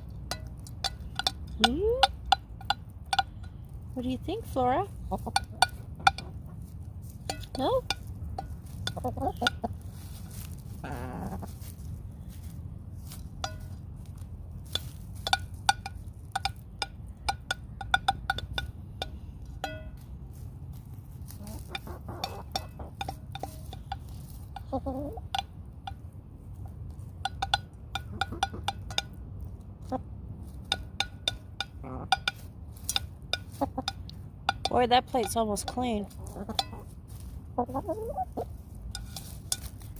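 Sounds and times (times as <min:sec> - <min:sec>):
beaks tapping on a plate: 0:00.0 - 0:03.7, 0:07.2 - 0:09.8, 0:14.7 - 0:20.0, 0:21.7 - 0:30.0, 0:30.6 - 0:36.8
steady low hum: 0:00.0 - 0:39.9
hens clucking: 0:04.0 - 0:12.6, 0:20.7 - 0:39.9.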